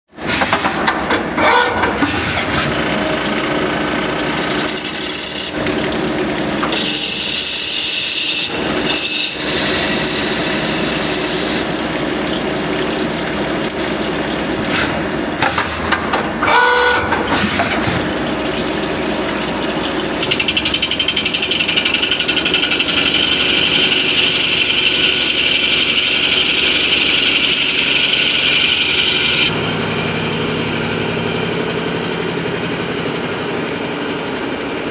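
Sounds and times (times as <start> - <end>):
cnc machine cutting with whine: 20.4 - 34.9.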